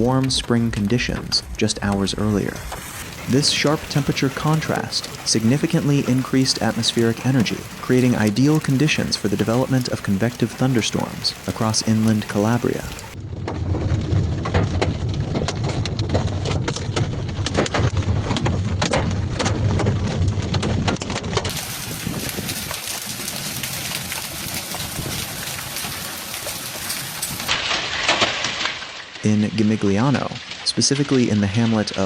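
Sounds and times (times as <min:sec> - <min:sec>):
low rumble: 0:00.0 - 0:08.3, 0:10.3 - 0:20.8
heavy rain hissing: 0:00.0 - 0:13.2, 0:21.5 - 0:27.6
hail pattering on hard surfaces: 0:00.0 - 0:32.0.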